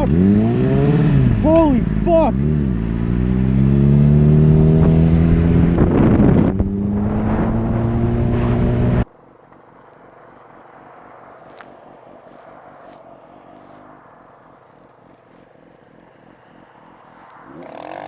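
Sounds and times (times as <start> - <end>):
motorcycle engine accelerating: 0.0 - 9.1
rush of noise: 4.4 - 9.1.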